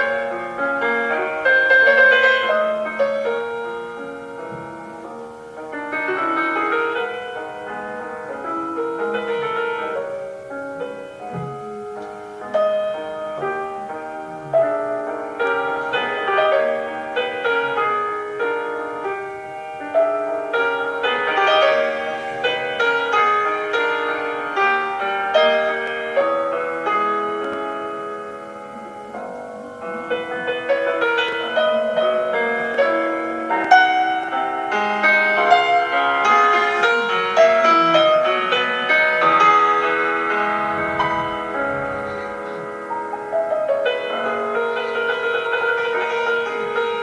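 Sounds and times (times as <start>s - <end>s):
slow solo piano piece: 0.0s - 47.0s.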